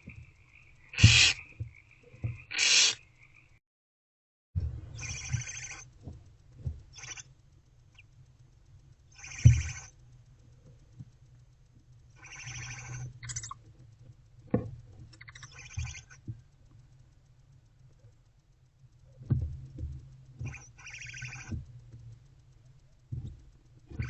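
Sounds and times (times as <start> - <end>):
owlets raspy hissing calls: 0.9 - 1.6, 2.5 - 3.0, 5.0 - 5.8, 20.5 - 21.5.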